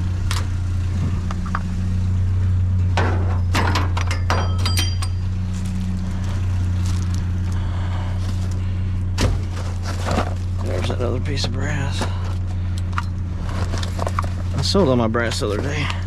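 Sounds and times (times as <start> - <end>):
steady low hum: 0.0 - 16.0
scrap metal clinking: 3.0 - 5.8
bright metal rings: 3.4 - 5.6.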